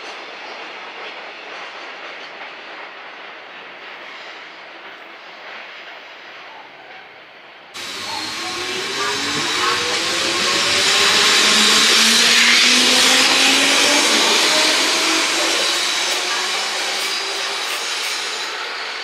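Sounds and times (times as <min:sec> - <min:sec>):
train rushing and rail noise: 0:00.0 - 0:19.0
electric motor whine rising: 0:07.8 - 0:19.0.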